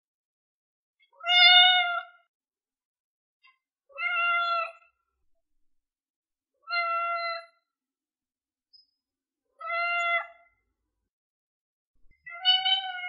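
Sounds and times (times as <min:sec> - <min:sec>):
cat meowing: 0:01.2 - 0:02.2, 0:03.9 - 0:04.8, 0:06.6 - 0:07.6, 0:09.6 - 0:10.5, 0:12.2 - 0:13.0.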